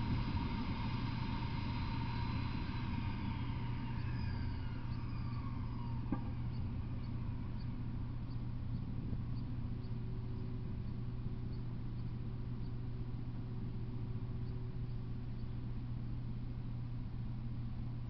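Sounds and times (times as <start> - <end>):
steady low hum: 0.0 - 18.0
faint high chirps: 1.3 - 12.7.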